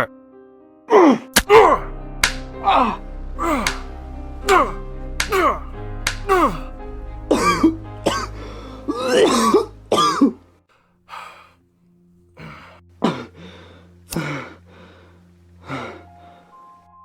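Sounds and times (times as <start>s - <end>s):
low music drone: 1.4s - 11.4s, 12.3s - 16.9s
man coughing: 1.5s - 1.9s, 3.4s - 3.9s, 4.5s - 6.7s, 7.4s - 8.4s, 9.1s - 10.4s, 12.4s - 13.4s.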